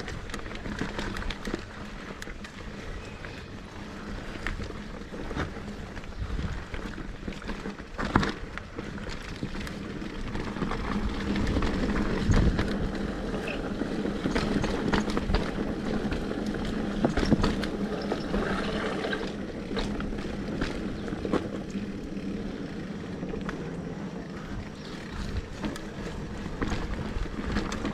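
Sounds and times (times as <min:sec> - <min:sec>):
bike knocks and rattles over bumps: 0:00.0 - 0:27.9
bike tyres rumbling on dirt: 0:00.0 - 0:27.9.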